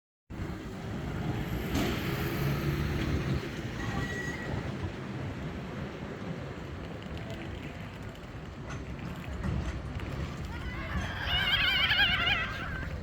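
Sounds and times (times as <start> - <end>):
tram rumbling along rails: 0.3 - 13.0
wheel squeal: 3.6 - 4.9.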